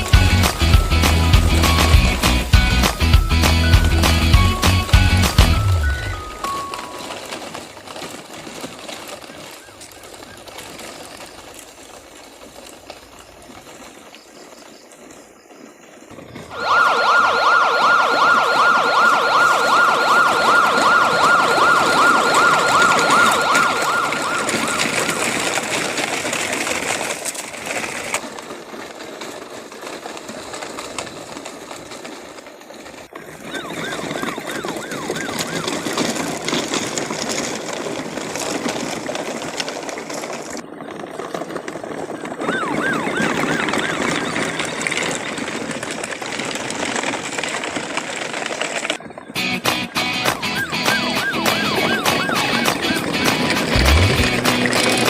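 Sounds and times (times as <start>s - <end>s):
toy police siren warbling: 3.9s - 7.6s, 16.4s - 25.6s, 33.2s - 36.4s, 42.1s - 45.2s, 50.3s - 53.1s
steady rough noise: 52.4s - 55.0s.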